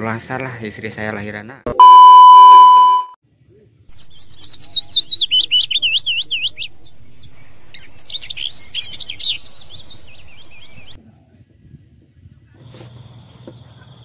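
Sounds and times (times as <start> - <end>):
songbird singing: 3.9 - 11.0.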